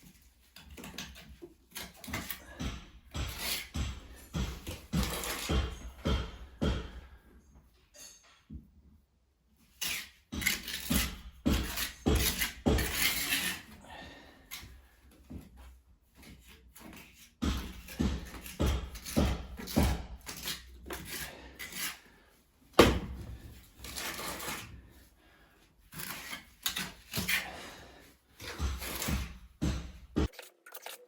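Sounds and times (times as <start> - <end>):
scraping strokes: 9.7 - 14.5, 16.1 - 22.4, 23.3 - 25.2, 25.8 - 29.4.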